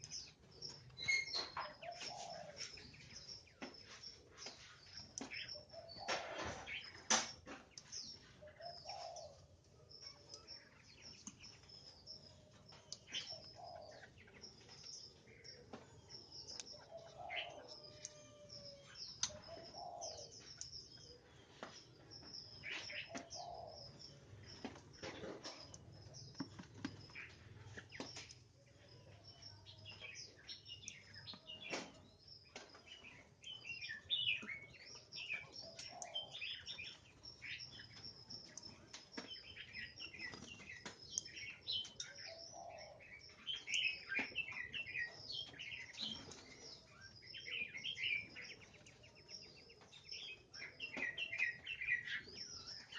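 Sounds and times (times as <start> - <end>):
birds chirping and calling: 0.0 - 52.9.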